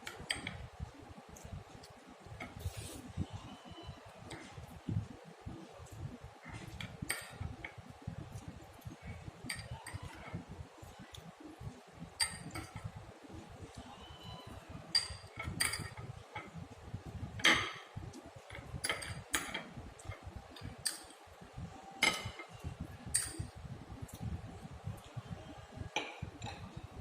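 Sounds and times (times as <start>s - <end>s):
cutlery clinking on dishes: 6.4s - 7.8s, 12.2s - 12.9s, 14.9s - 16.6s, 17.4s - 21.2s, 22.0s - 23.5s, 26.0s - 26.8s.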